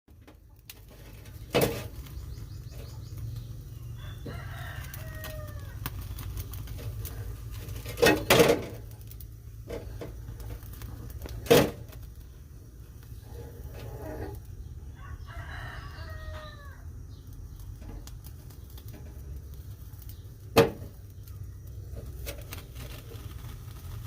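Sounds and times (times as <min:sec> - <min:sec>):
rooster crowing: 0:03.8 - 0:05.9, 0:14.8 - 0:17.1.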